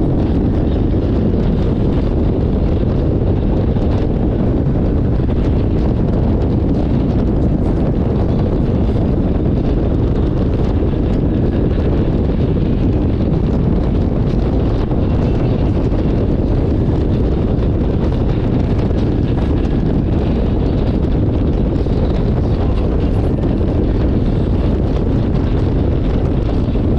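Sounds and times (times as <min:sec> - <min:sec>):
wind buffeting microphone: 0:00.0 - 0:26.9.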